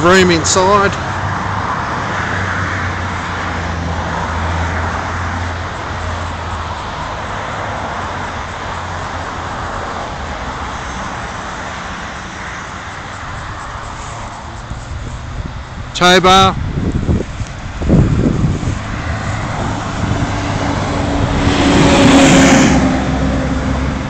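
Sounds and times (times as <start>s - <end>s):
road traffic rush: 0.0s - 24.0s
low engine hum: 16.6s - 24.0s.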